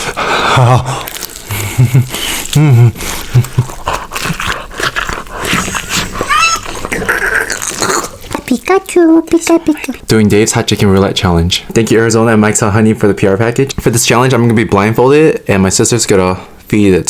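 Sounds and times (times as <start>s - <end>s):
people talking: 6.3s - 17.0s.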